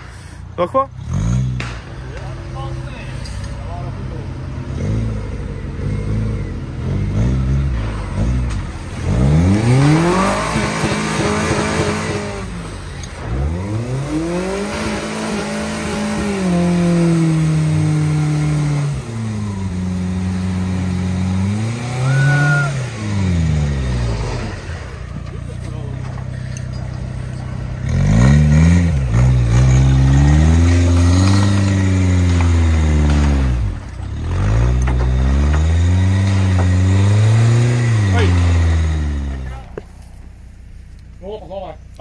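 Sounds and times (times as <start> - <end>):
car engine revving hard: 4.6 - 25.0, 27.7 - 39.7.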